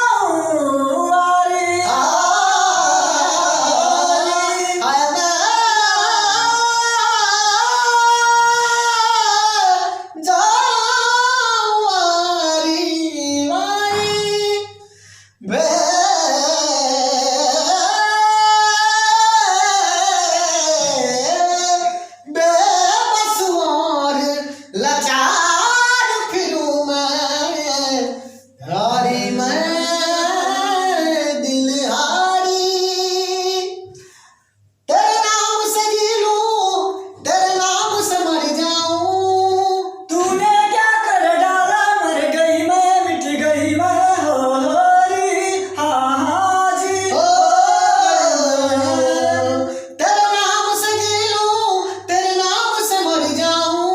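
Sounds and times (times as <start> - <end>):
person singing unaccompanied: 0.0 - 34.1, 34.9 - 53.9
singer breathing: 14.8 - 15.4, 33.9 - 34.8.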